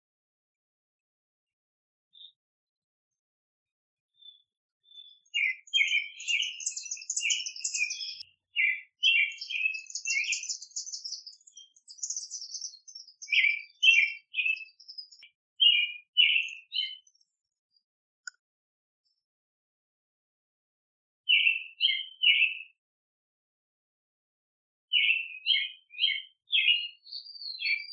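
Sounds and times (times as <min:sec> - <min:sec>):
songbirds chirping and trilling: 0:02.1 - 0:02.4, 0:04.1 - 0:18.4, 0:21.2 - 0:22.8, 0:24.9 - 0:27.9.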